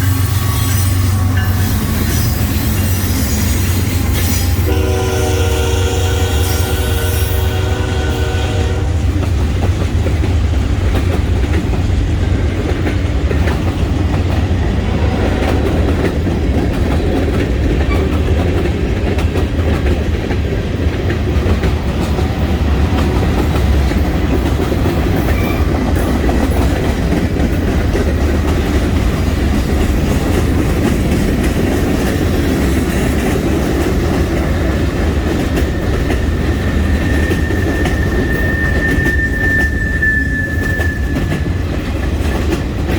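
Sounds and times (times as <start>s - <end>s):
high wheel squeal: 0.0s - 4.8s, 35.6s - 41.7s
freight train rumbling past: 0.0s - 42.9s
wheels clacking over rail joints: 9.0s - 39.7s.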